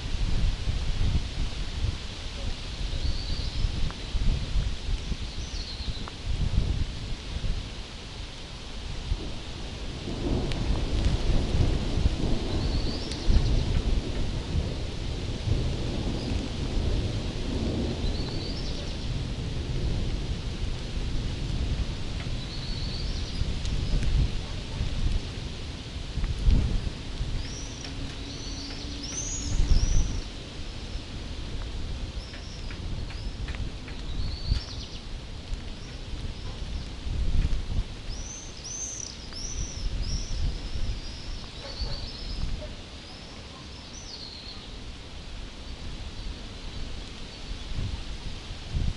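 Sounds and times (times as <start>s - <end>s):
steady rain hiss: 0.0s - 48.9s
wind: 0.0s - 48.9s
rolling thunder: 9.0s - 38.3s
bird chirping: 27.4s - 31.0s, 38.1s - 44.8s.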